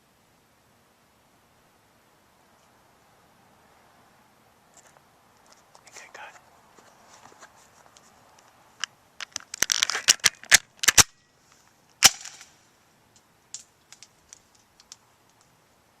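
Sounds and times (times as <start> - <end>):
faint ticks: 13.1 - 15.6.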